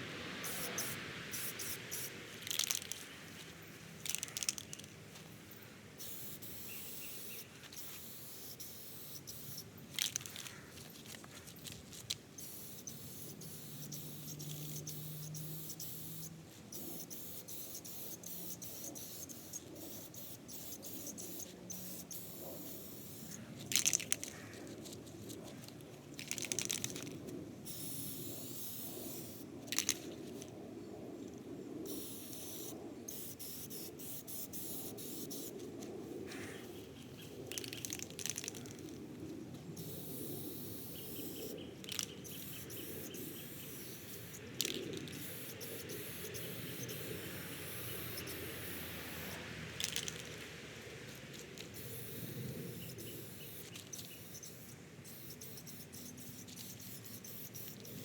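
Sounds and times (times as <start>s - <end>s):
aerosol can spraying: 0.4s - 3.0s, 6.0s - 10.5s, 11.6s - 24.2s, 39.8s - 50.3s, 51.7s - 58.0s.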